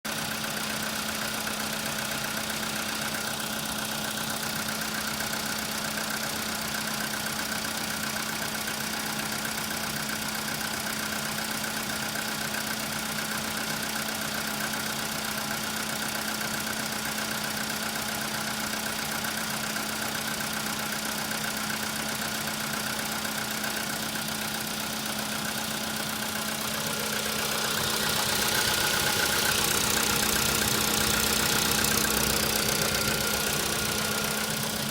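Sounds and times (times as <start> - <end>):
car engine idling with knock: 0.1 - 34.9.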